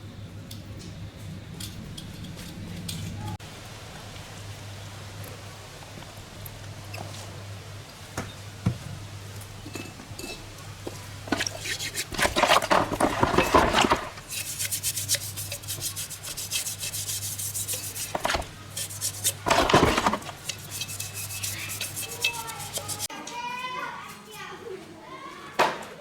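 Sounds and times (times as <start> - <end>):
hand rubbing and scraping: 11.2 - 23.1.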